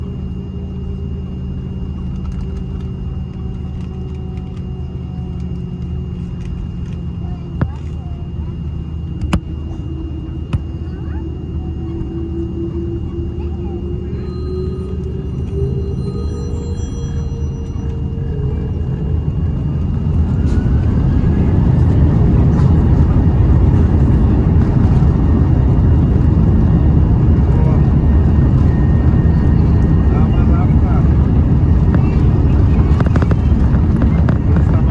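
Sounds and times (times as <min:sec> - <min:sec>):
airliner engine rumble and whine: 0:00.0 - 0:34.9.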